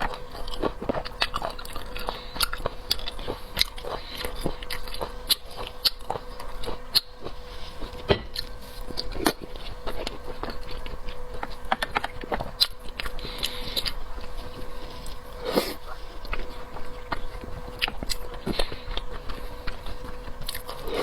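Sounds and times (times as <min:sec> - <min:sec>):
person chewing seafood: 0:00.0 - 0:21.0.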